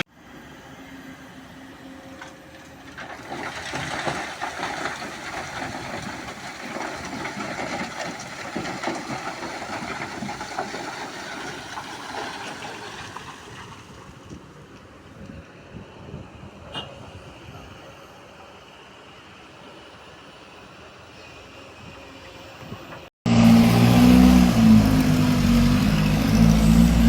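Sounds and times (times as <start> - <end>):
truck rumbling past: 23.0 - 27.0.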